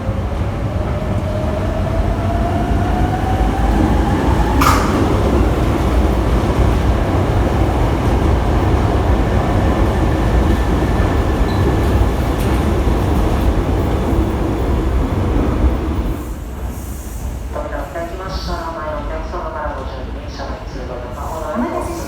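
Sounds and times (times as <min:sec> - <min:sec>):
electric train rumbling: 0:00.0 - 0:22.0.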